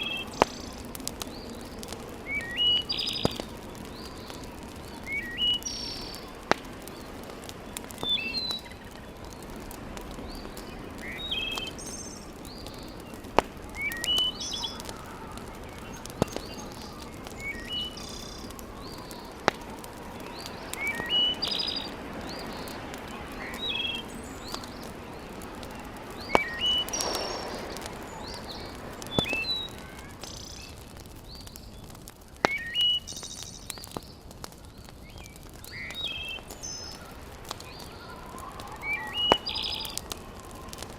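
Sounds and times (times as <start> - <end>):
wood fire crackling: 0.0 - 40.9
bird call rising and falling: 2.3 - 6.4, 20.2 - 30.7, 35.6 - 40.2.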